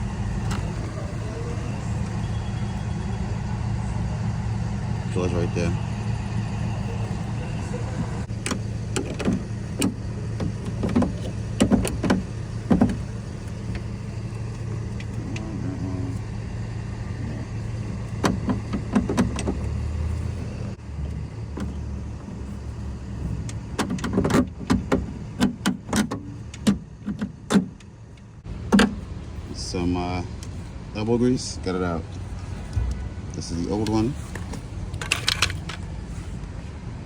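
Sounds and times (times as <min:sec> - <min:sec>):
steady low hum: 0:00.0 - 0:37.0
metal and plastic parts clicking: 0:33.8 - 0:35.9.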